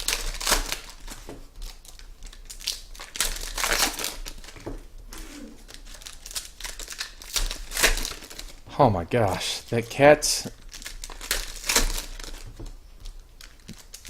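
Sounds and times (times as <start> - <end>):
card wrappers crinkling: 0.0 - 8.6, 10.4 - 14.0.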